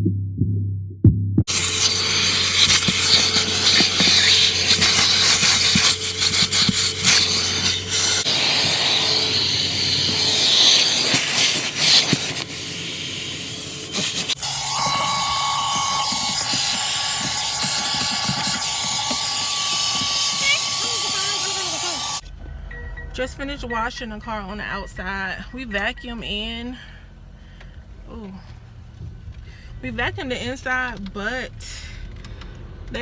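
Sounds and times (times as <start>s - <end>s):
car wash equipment hissing: 1.5s - 22.2s.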